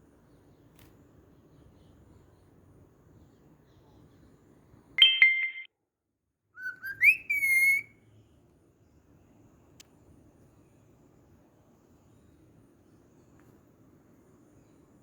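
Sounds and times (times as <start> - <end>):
cockatiel whistling: 6.6 - 7.9.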